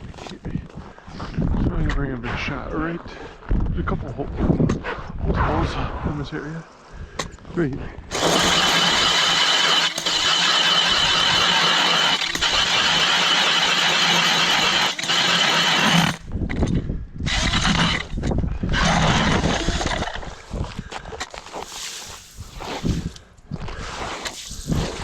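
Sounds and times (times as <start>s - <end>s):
ice auger motor whining: 8.1s - 16.2s, 17.3s - 18.2s, 18.8s - 20.2s.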